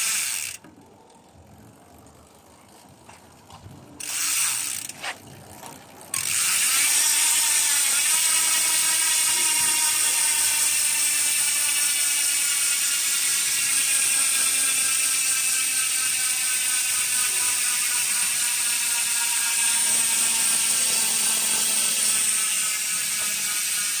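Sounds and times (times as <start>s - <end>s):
bicycle hub freewheeling buzz: 0.0s - 24.0s.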